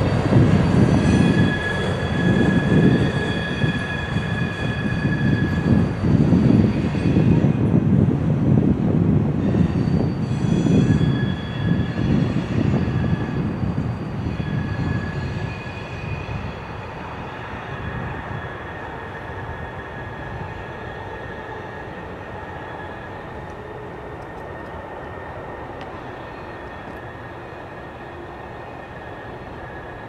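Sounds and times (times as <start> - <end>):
train wheels rumbling on rails: 0.0 - 30.0
wheels squealing on curve: 0.3 - 7.5, 9.4 - 23.8.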